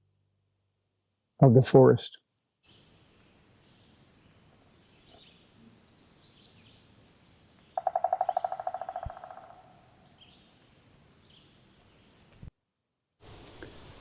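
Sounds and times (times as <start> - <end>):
faint bird chirps: 2.7 - 12.4.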